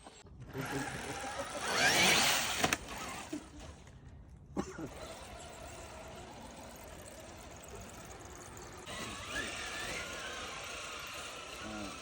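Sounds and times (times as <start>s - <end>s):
electric motor whine: 4.9s - 12.0s.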